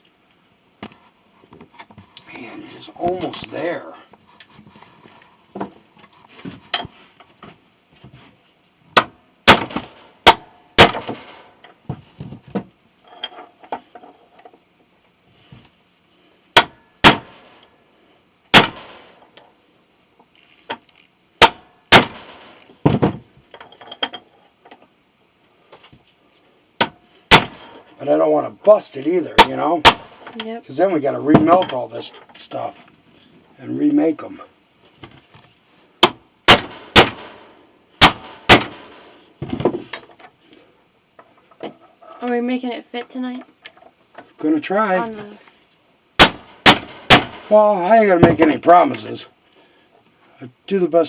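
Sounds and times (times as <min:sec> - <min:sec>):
faint knocks and scraping: 0:00.8 - 0:08.6, 0:11.6 - 0:14.6, 0:39.0 - 0:42.4.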